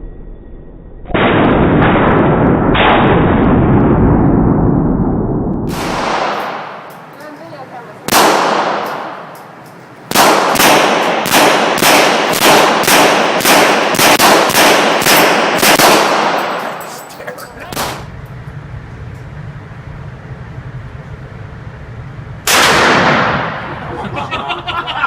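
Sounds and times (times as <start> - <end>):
gunshots with ringing tail: 1.1 - 5.0, 5.6 - 7.0, 8.1 - 9.4, 10.1 - 17.0, 17.7 - 18.1, 22.4 - 23.9
low steady hum: 14.8 - 25.0.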